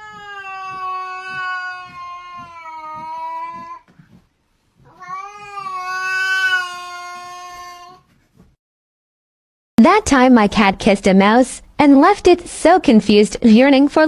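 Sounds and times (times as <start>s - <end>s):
cat yowling: 0.0s - 3.8s, 4.9s - 8.0s.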